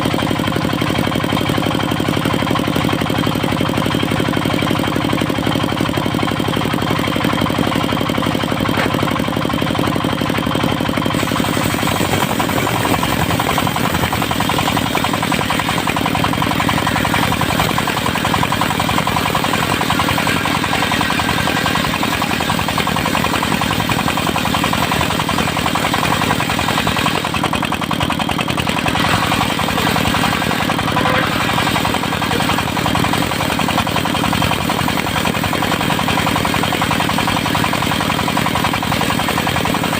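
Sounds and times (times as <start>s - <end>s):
sawmill engine knocking: 0.0s - 39.9s
saw blade cutting wood: 8.7s - 9.1s, 11.1s - 27.6s, 28.5s - 39.9s.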